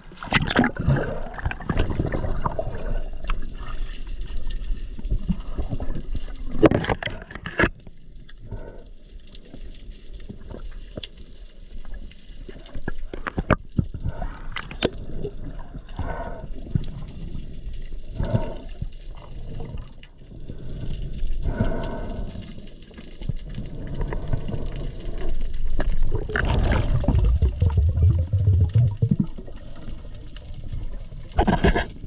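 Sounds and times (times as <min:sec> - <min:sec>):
bubbly bursts: 0:00.0 - 0:03.8, 0:23.7 - 0:31.3
water sloshing and gurgling: 0:00.0 - 0:32.0.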